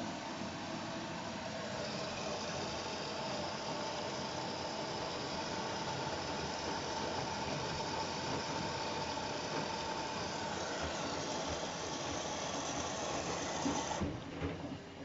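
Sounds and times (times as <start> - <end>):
washing machine running: 0.0 - 15.0.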